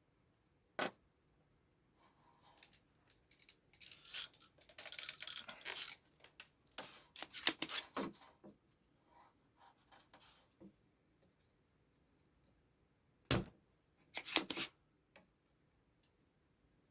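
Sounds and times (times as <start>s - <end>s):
hand tools scraping and clicking: 7.2s - 7.9s, 14.2s - 14.7s.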